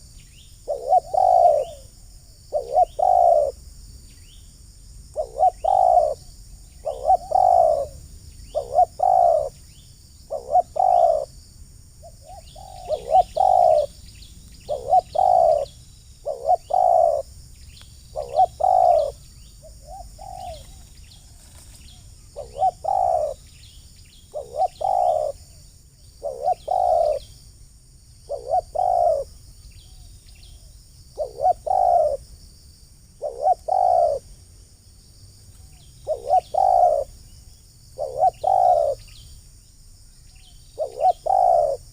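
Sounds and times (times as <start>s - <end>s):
dove cooing: 0.6s - 3.6s, 5.1s - 9.6s, 10.3s - 11.3s, 12.0s - 17.3s, 18.1s - 23.6s, 24.3s - 25.6s, 26.2s - 27.3s, 28.3s - 30.6s, 31.2s - 32.2s, 33.2s - 34.3s, 35.6s - 37.2s, 38.0s - 39.2s, 40.8s - 41.9s.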